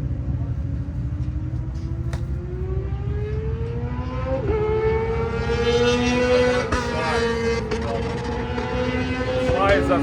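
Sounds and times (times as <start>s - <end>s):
vehicle engine running: 5.4s - 10.0s.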